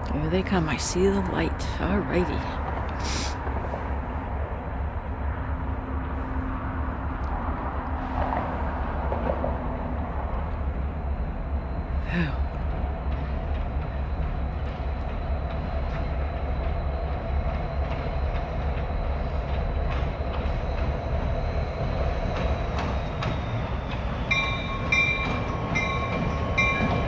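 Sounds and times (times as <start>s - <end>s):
diesel locomotives rumbling: 0.0s - 27.0s
locomotive bell ringing: 20.1s - 27.0s.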